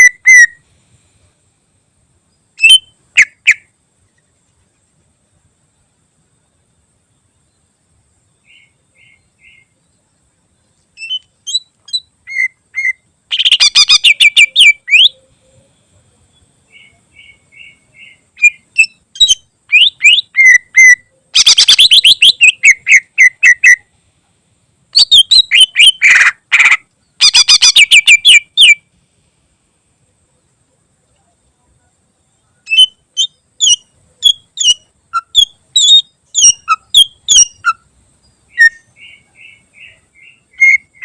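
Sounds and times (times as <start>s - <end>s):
bird chattering trills: 11.0s - 15.5s, 16.7s - 23.9s, 25.0s - 28.8s, 32.6s - 37.8s, 38.5s - 41.0s.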